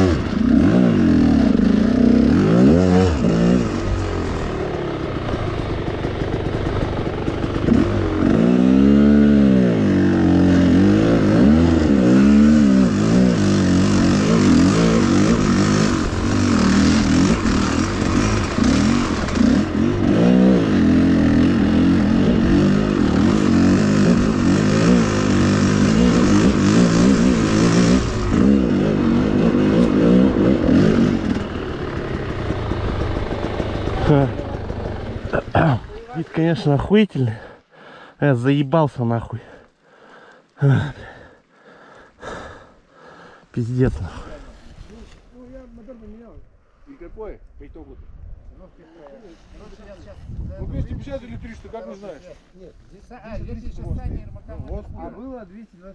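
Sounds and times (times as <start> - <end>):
motorcycle engine revving: 0.0 - 37.6.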